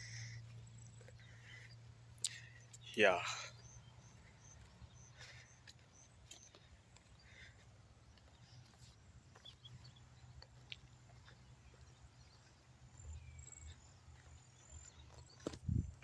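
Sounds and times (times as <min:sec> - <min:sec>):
faint ticks: 0:00.0 - 0:02.9.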